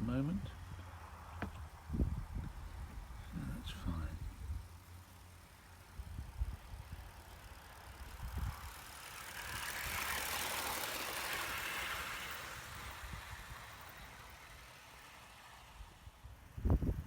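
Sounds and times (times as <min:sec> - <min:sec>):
model locomotive wheels clattering: 0:02.6 - 0:17.0.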